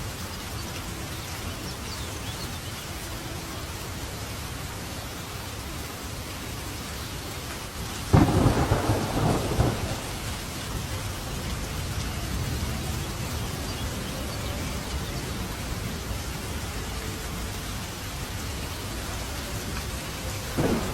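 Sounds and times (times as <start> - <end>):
steady rain: 0.0 - 20.9
thunderclap rumbling: 8.1 - 12.8, 20.4 - 20.9.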